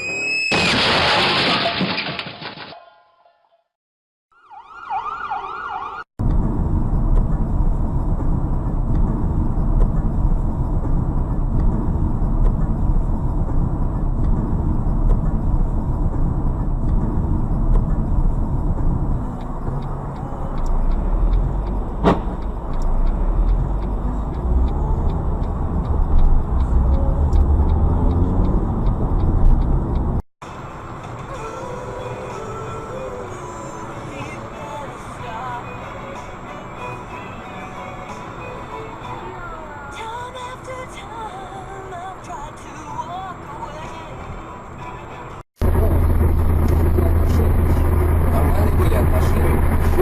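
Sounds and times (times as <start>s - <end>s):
wavering siren: 4.3s - 6.1s
car engine and road noise: 4.6s - 50.0s
sharp click: 20.6s - 23.6s.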